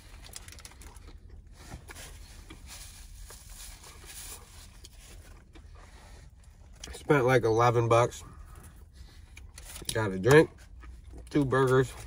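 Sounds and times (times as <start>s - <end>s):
paper wrapper crinkling: 0.0s - 1.1s
person chewing: 0.0s - 7.0s, 8.4s - 12.0s.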